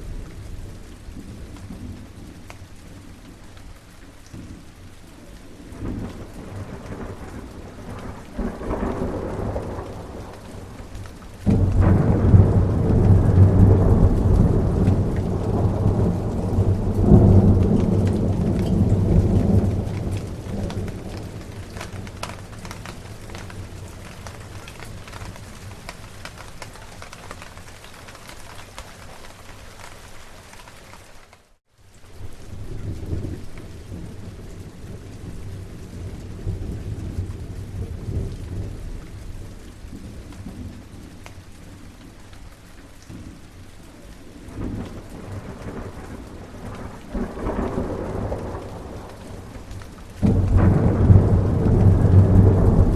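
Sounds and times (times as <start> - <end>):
steady rain: 0.0 - 52.9
rolling thunder: 5.7 - 26.4, 44.5 - 52.9.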